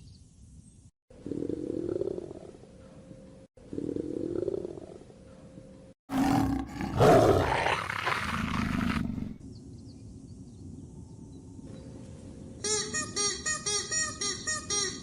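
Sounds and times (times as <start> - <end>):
large animal roaring: 6.1 - 9.4.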